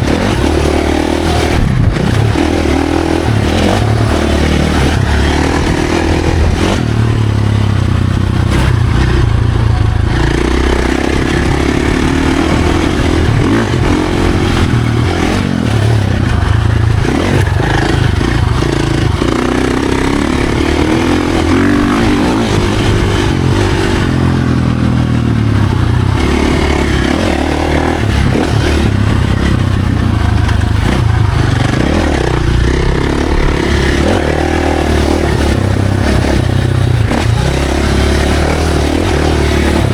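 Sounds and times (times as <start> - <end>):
dirt bike engine revving: 0.0 - 39.9
rushing noise: 26.1 - 39.9.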